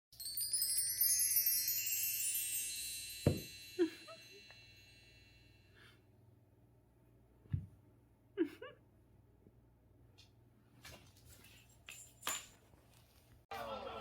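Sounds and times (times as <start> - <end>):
bright chimes ringing: 0.2 - 5.8
thump: 3.2 - 3.5.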